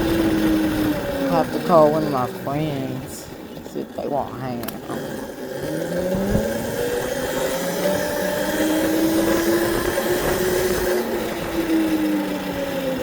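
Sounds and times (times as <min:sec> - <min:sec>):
motorbike engine running: 0:00.0 - 0:13.0
rushing wind noise: 0:04.4 - 0:12.9.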